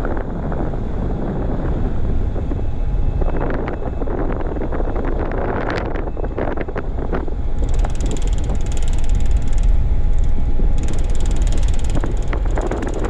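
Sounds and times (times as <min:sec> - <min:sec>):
low rumble: 0:00.0 - 0:13.0
wind buffeting microphone: 0:00.0 - 0:13.0
fast mechanical rattle: 0:07.4 - 0:13.0.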